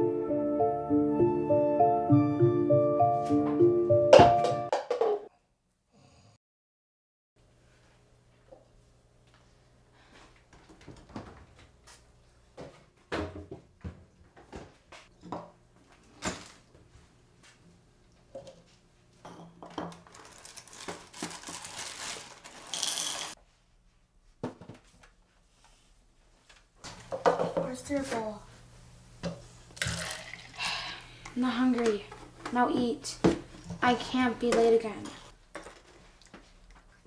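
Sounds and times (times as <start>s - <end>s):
rustling clattering noise: 19.7s - 23.4s.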